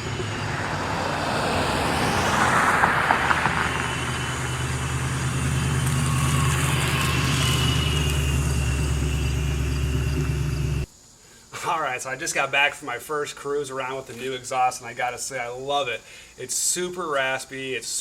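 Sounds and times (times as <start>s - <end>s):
brief rushing noise: 0.0s - 8.3s
car engine running: 0.0s - 10.9s.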